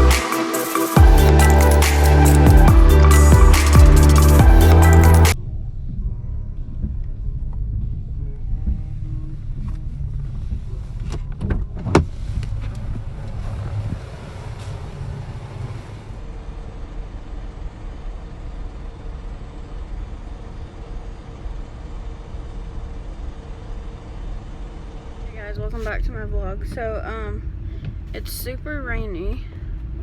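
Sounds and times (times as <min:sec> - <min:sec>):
car engine from inside cabin: 0:06.3 - 0:30.0.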